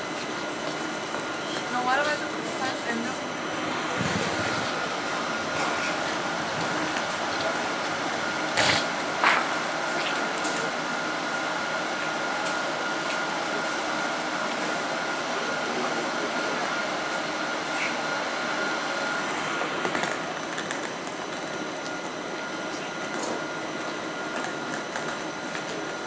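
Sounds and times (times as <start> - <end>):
electric train running past: 1.0 - 10.0.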